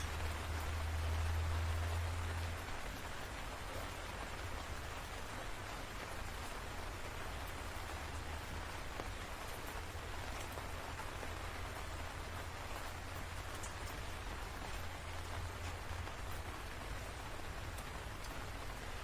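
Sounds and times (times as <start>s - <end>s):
low steady rumble: 0.0s - 4.7s
rain falling: 0.0s - 19.0s
raindrop ticks: 0.0s - 19.0s.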